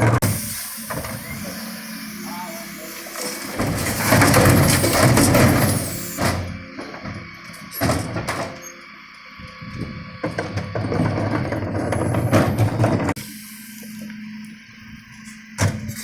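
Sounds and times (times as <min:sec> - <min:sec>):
truck engine running: 0:00.0 - 0:16.0
bins knocking and banging: 0:03.1 - 0:08.7, 0:09.7 - 0:13.2.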